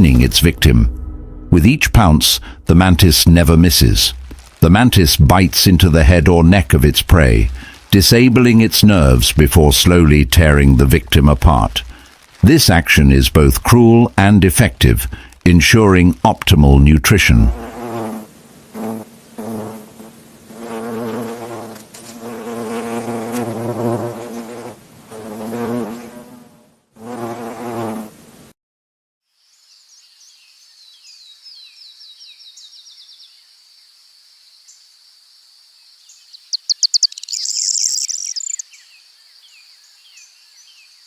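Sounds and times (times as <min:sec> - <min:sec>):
flying insect buzzing: 0:17.5 - 0:28.5
high insect trill with chirps: 0:29.3 - 0:41.0.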